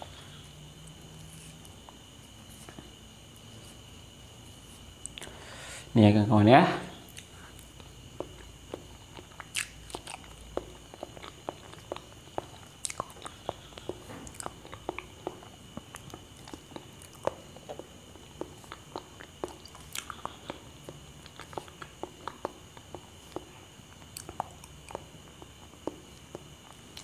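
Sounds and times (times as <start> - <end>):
person chewing wetly: 7.1 - 27.0.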